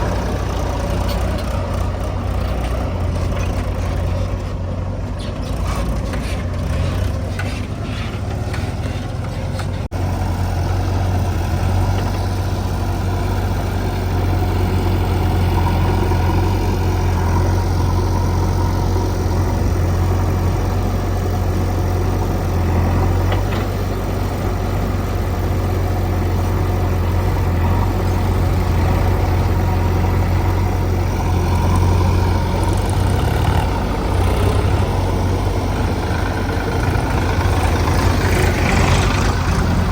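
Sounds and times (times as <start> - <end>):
diesel engine humming: 0.0 - 39.9.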